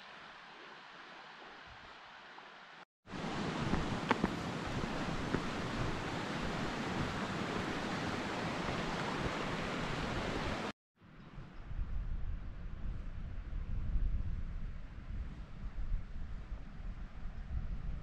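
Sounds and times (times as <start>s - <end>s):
steady rushing noise: 3.1s - 10.7s.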